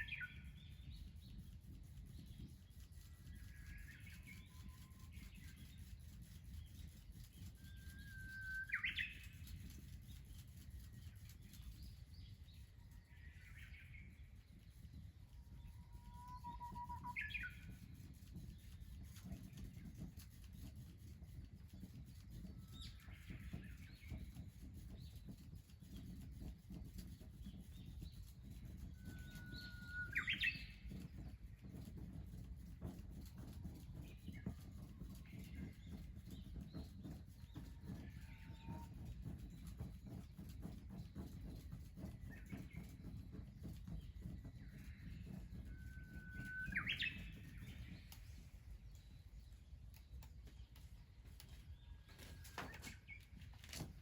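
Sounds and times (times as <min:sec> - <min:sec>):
faint bird chirps: 0:00.0 - 0:20.8, 0:27.2 - 0:33.0, 0:34.0 - 0:53.9
songbird whistle calls: 0:08.0 - 0:09.3, 0:16.0 - 0:17.7, 0:29.0 - 0:30.8, 0:45.9 - 0:47.9.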